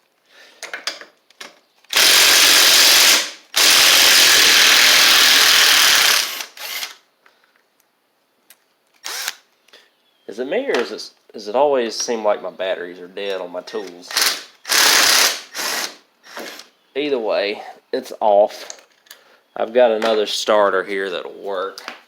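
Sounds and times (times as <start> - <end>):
cordless power tool running: 1.9 - 6.9, 9.1 - 9.3.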